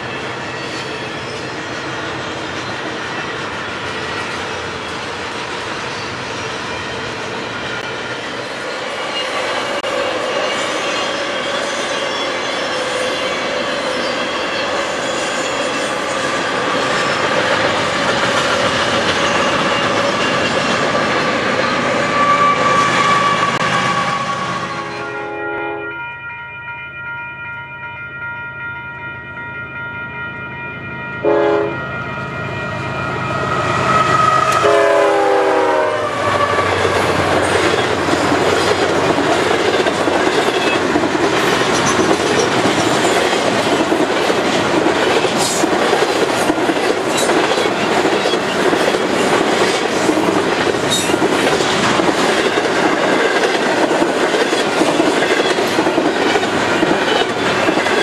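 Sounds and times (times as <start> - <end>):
container train rumbling by: 0.0 - 25.2, 31.5 - 58.0
freight train horn chord: 22.2 - 27.8, 31.1 - 36.8.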